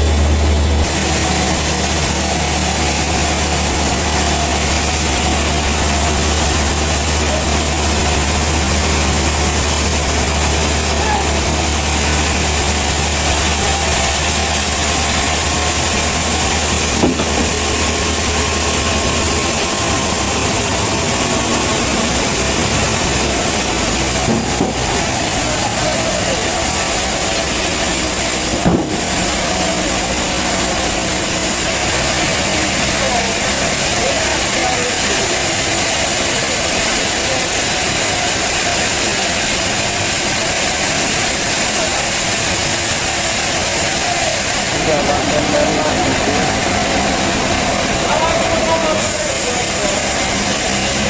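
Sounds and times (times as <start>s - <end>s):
engine idling: 0.0s - 51.0s.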